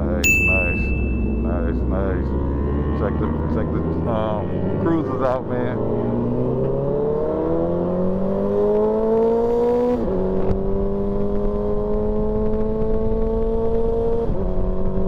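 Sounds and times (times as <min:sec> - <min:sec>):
wind and road noise: 0:00.0 - 0:15.0
motorcycle engine accelerating: 0:00.9 - 0:15.0.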